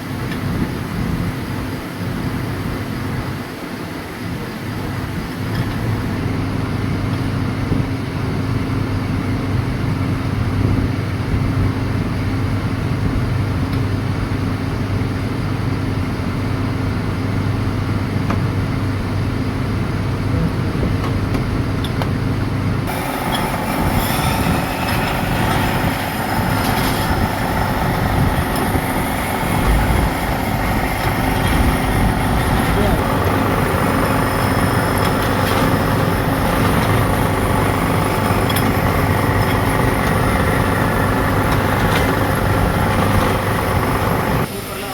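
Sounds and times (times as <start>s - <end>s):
machinery low hum: 0.0s - 44.9s
clattering machine noise: 4.2s - 7.9s, 17.6s - 44.9s.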